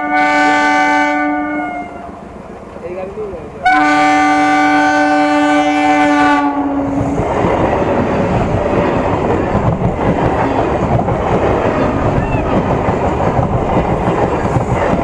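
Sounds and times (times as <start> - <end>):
train horn: 0.0 - 2.2, 3.6 - 7.0
train rumbling over rails: 0.0 - 15.0.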